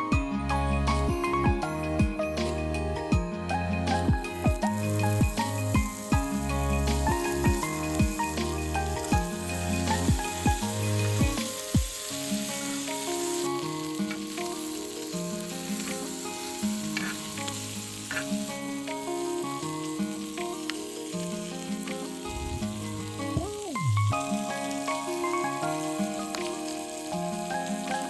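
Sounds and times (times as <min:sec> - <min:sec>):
background music: 0:00.0 - 0:28.0
food sizzling in a pan: 0:00.7 - 0:28.0.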